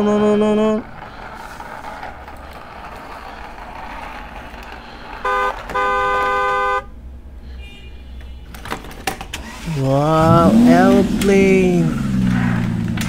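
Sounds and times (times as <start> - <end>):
toy whirring: 0.0 - 6.2
toy car electronic horn beeping: 5.2 - 6.9, 7.5 - 8.6.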